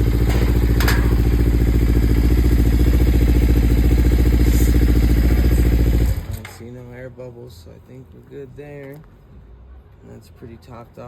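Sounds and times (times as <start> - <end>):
motorcycle engine idling: 0.0 - 6.4.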